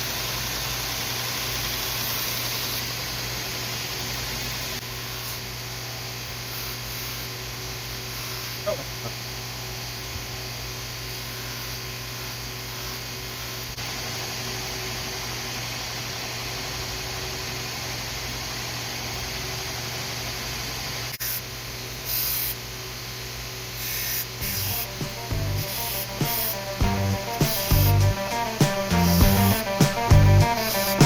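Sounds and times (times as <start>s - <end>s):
background music: 24.4s - 31.0s
belt grinder motor hum: 24.4s - 31.0s.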